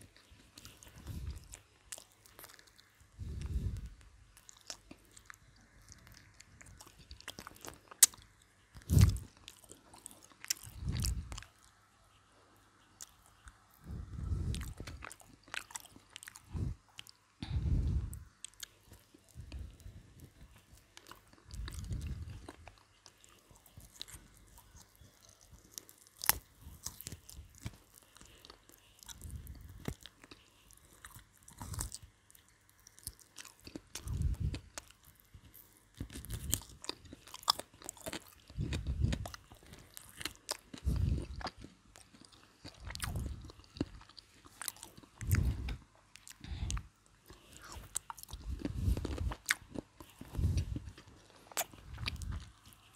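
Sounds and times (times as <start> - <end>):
low mouth sounds: 0.0 - 11.6, 13.0 - 22.8, 33.6 - 39.8, 44.8 - 46.9, 47.6 - 52.9
crunchy fried chicken chewing: 0.0 - 52.9.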